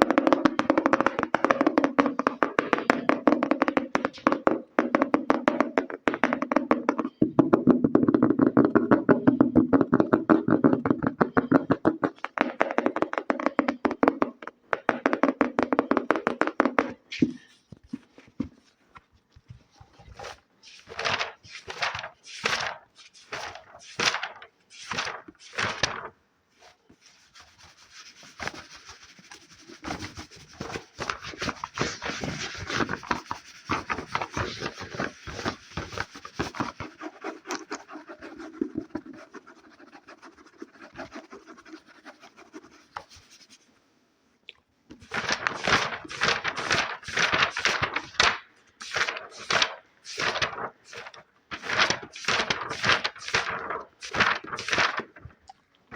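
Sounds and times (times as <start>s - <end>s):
fingers scratching an object: 19.8s - 24.1s, 26.7s - 43.7s, 48.8s - 55.2s.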